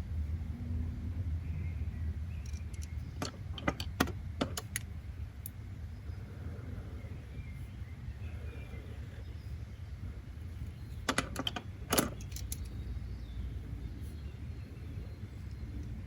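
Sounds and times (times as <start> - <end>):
steady low background noise: 0.0 - 16.0
sharp clicks of small hard objects: 2.4 - 5.6, 11.1 - 12.8.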